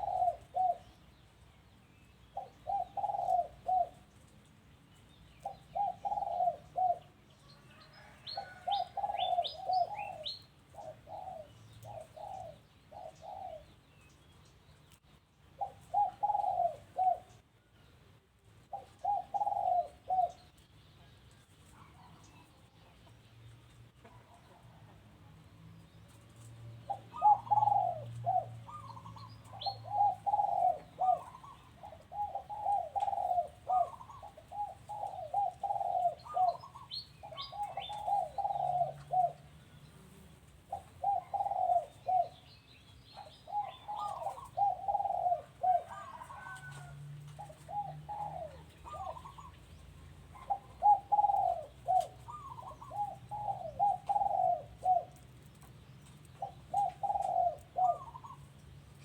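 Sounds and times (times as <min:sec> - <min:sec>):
doves cooing: 0:00.0 - 0:01.1, 0:02.2 - 0:04.3, 0:05.3 - 0:13.8, 0:15.5 - 0:17.4, 0:18.7 - 0:20.6, 0:26.1 - 0:58.8.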